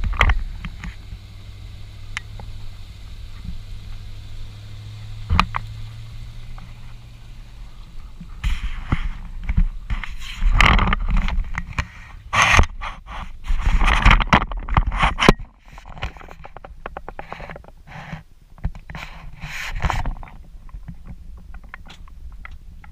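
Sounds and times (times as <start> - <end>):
engine humming: 0.0 - 22.9
rough gusty noise: 0.0 - 22.9
thumps: 2.1 - 17.8.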